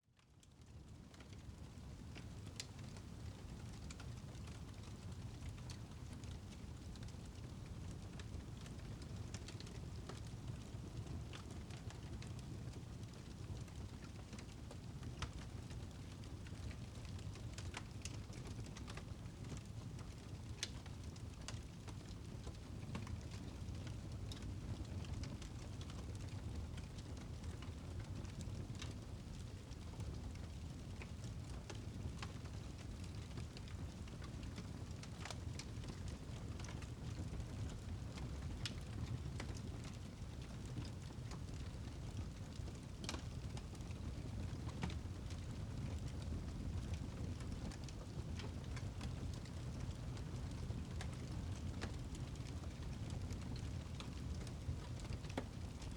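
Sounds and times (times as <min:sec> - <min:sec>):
fireplace fire crackling: 0:00.4 - 0:55.9.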